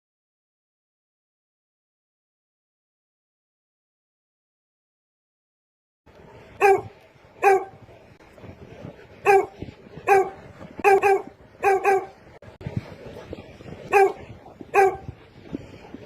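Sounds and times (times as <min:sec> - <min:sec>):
dog barking: 0:06.6 - 0:07.7, 0:09.2 - 0:12.2, 0:13.9 - 0:15.0.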